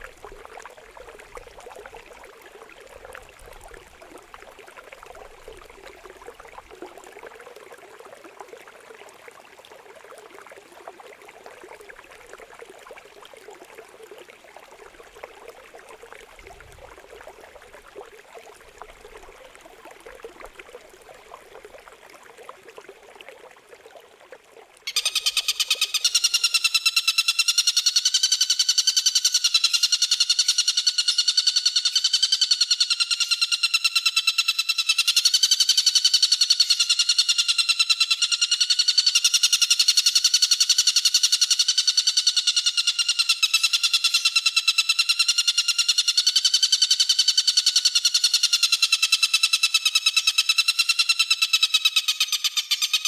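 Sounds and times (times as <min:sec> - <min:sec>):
water trickling: 0:00.0 - 0:26.4.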